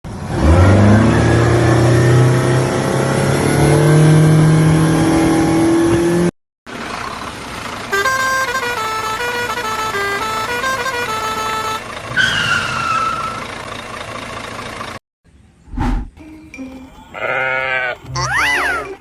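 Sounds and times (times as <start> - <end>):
motor engine revving: 0.1 - 7.1
melody of stepped notes: 16.2 - 19.0.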